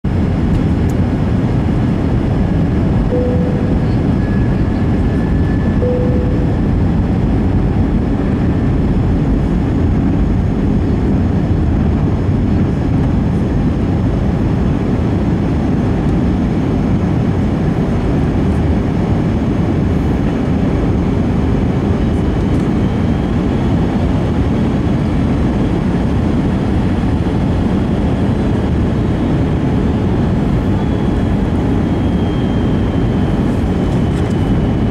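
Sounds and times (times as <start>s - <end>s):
airliner cabin engine noise: 0.0s - 34.9s
short tones: 3.1s - 4.6s, 5.6s - 6.9s.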